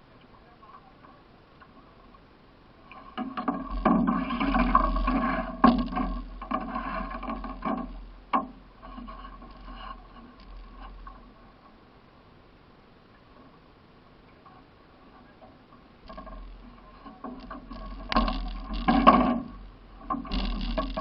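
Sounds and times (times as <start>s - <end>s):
scraping against canoe hull: 2.8s - 11.8s, 14.5s - 21.0s
sharp knocks on hull: 3.2s - 8.6s, 17.2s - 21.0s.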